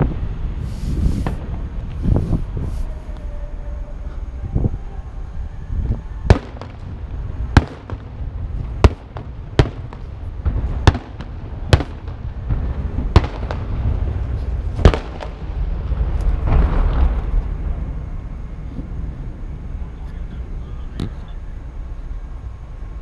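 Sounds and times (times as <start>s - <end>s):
fireworks bangs: 0.0s - 21.6s
steady low rumble: 0.0s - 23.0s.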